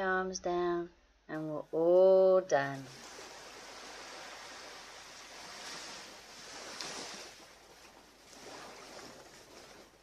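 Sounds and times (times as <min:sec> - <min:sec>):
ocean waves washing onto beach: 0:02.7 - 0:10.0.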